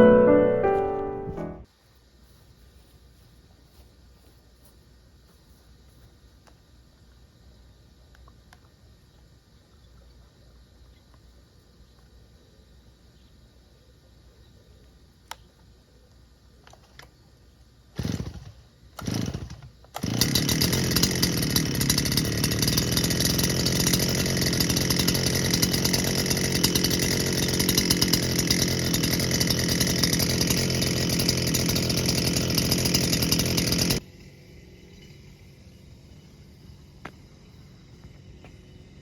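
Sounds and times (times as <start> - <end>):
brush cutter engine starting: 17.9 - 35.4.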